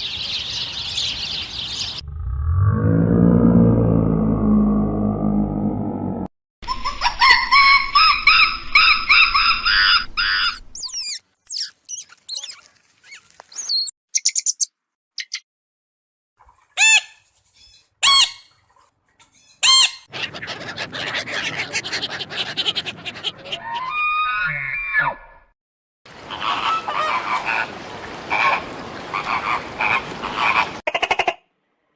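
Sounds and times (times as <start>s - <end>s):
high chirps and whistles: 10.8s - 12.6s, 13.6s - 15.4s
repeated pitched animal calls: 19.5s - 25.4s
noisy animal calls: 20.0s - 25.2s.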